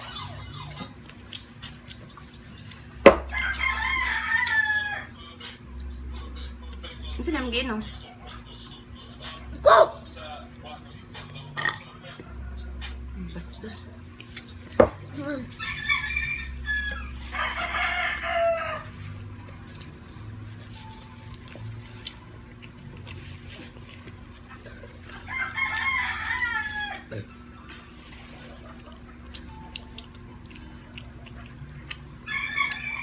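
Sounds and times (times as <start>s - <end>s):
rooster crowing: 3.1s - 5.2s, 15.6s - 19.2s, 25.1s - 27.3s, 32.2s - 33.0s.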